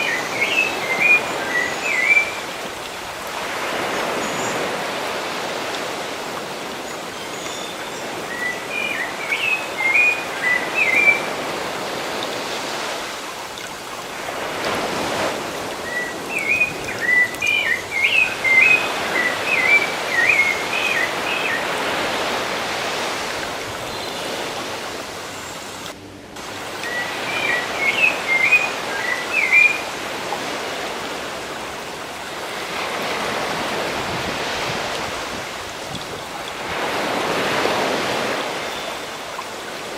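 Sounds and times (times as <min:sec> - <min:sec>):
songbird chirping: 0:00.0 - 0:02.7, 0:06.8 - 0:11.5, 0:13.5 - 0:22.9, 0:23.8 - 0:30.6
ocean surf washing ashore: 0:00.0 - 0:39.9.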